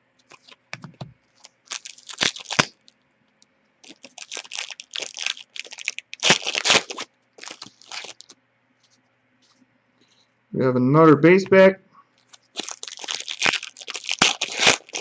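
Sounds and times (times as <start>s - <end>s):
foil wrapper tearing and crinkling: 0.3s - 0.6s, 1.4s - 2.9s, 3.8s - 8.4s, 12.2s - 15.0s.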